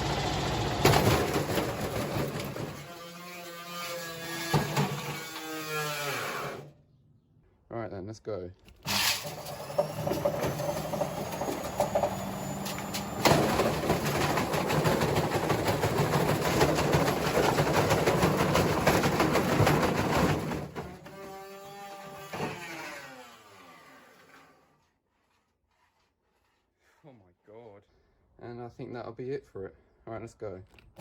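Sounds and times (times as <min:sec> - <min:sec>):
washing machine spinning and banging: 0:00.0 - 0:02.8, 0:09.3 - 0:21.0.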